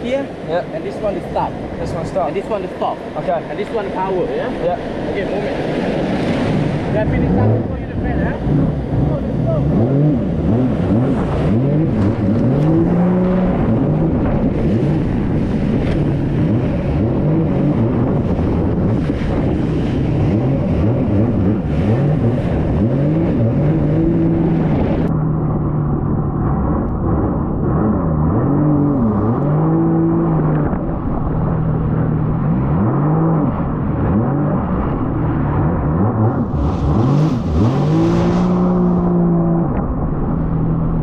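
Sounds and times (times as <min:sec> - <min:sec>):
jet ski engine revving: 0:00.0 - 0:41.0
wind rushing: 0:00.0 - 0:41.0
water spray rushing: 0:36.2 - 0:39.7.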